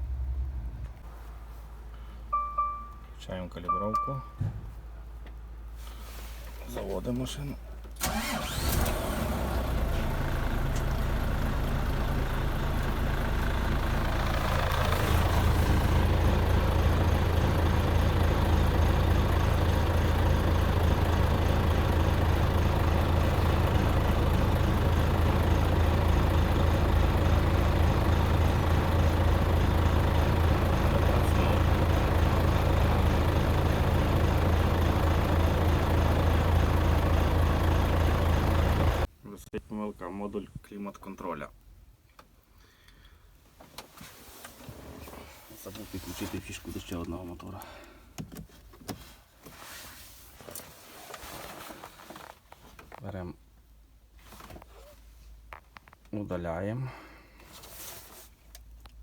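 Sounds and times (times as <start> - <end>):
truck diesel engine idling: 8.0 - 39.1.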